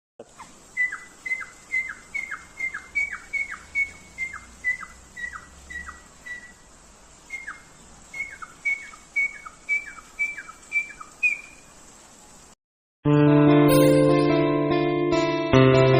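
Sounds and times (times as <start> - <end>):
bird chirping: 0.4 - 11.8.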